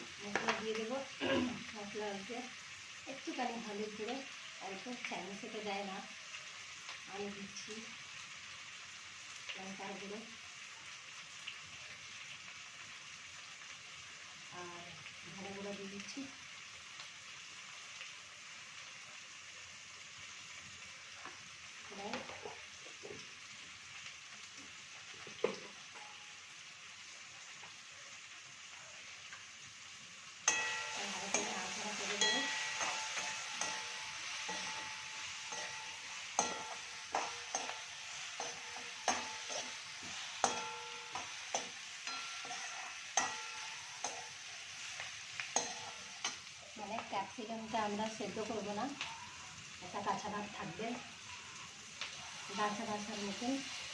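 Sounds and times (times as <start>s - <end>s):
onions sizzling in a pan: 0.0s - 53.9s
spatula scraping and knocking pan: 30.5s - 46.5s.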